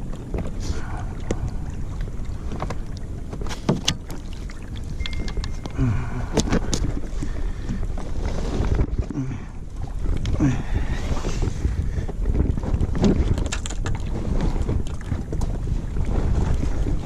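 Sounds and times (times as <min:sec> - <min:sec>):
wind on microphone: 0:00.0 - 0:17.0
fish knocking and scraping: 0:02.4 - 0:04.4, 0:05.0 - 0:09.2, 0:11.2 - 0:17.0.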